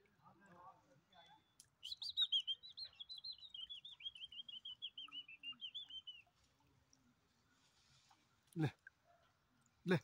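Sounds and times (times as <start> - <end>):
small bird chirping rapidly: 1.8 - 6.3.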